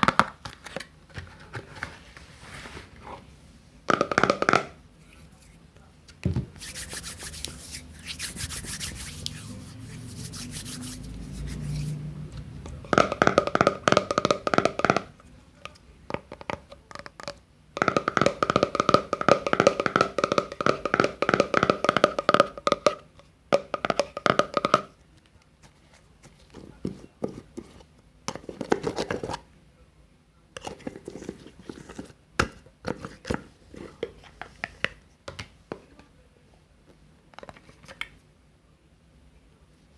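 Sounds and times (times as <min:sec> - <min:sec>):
hands rubbing and rustling: 0:06.5 - 0:12.0.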